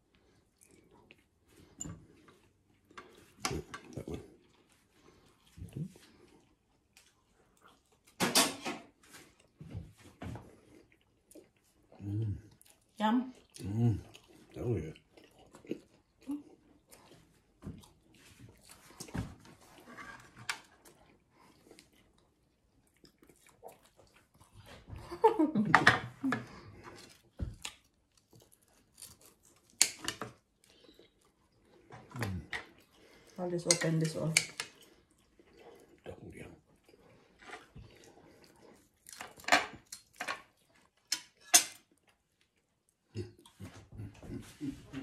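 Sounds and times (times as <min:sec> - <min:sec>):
chewing food: 0:00.0 - 0:08.2, 0:08.9 - 0:25.2, 0:26.2 - 0:45.0.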